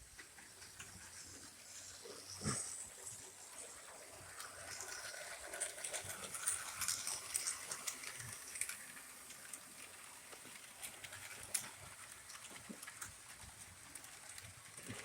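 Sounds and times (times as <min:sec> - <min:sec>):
model train humming on track: 0:00.0 - 0:15.0.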